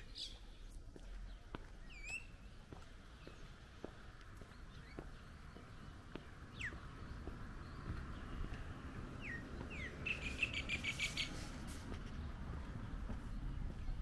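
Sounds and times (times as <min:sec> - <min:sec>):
songbirds chirping: 0:00.0 - 0:14.0
faint footsteps: 0:00.3 - 0:14.0
bird trill: 0:01.9 - 0:02.4, 0:09.2 - 0:11.3.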